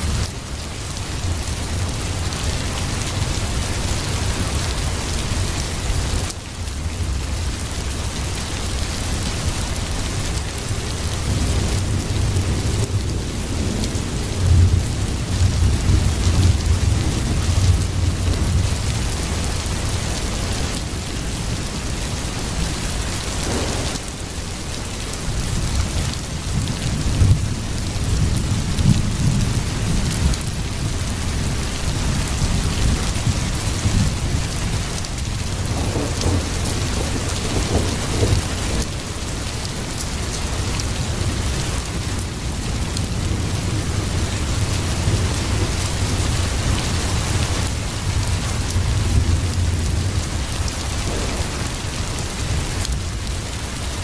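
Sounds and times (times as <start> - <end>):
heavy rain: 0.0 - 54.0
low rumbling: 23.4 - 24.7.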